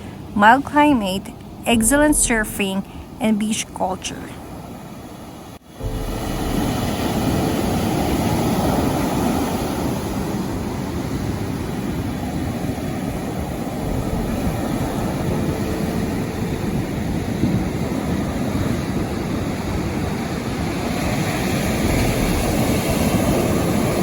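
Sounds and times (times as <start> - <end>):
ocean surf breaking: 0.0 - 24.0.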